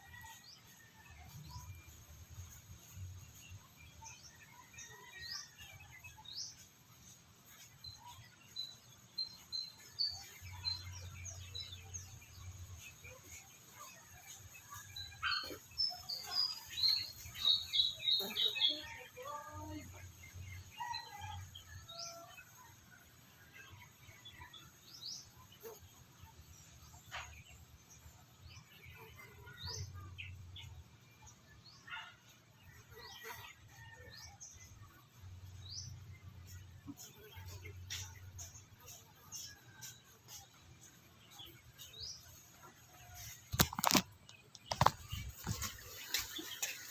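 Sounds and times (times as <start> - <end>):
birds chirping and calling: 8.6 - 21.4, 35.4 - 40.6, 43.2 - 46.9.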